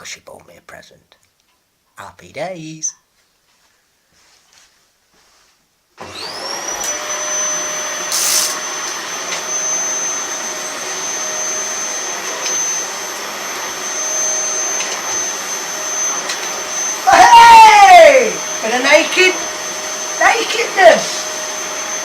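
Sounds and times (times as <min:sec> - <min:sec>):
vacuum cleaner motor whine: 0:06.0 - 0:22.0.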